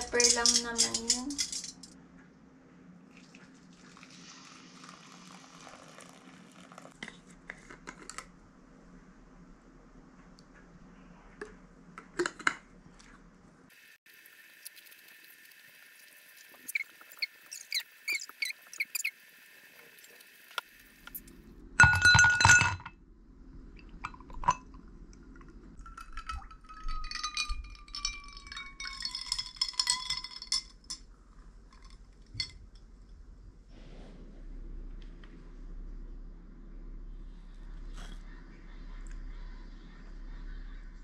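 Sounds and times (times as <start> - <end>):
glassware and dishes clinking: 0.0 - 2.0, 21.8 - 22.9, 25.8 - 31.0.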